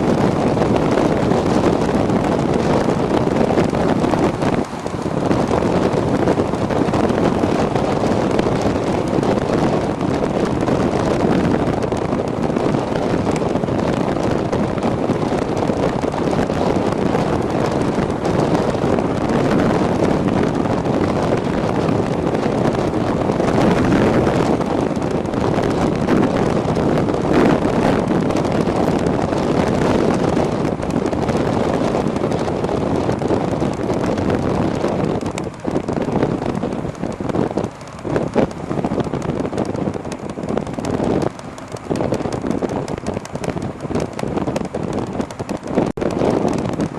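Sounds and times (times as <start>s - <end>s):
road noise: 0.0s - 46.9s
wind buffeting microphone: 0.0s - 46.9s.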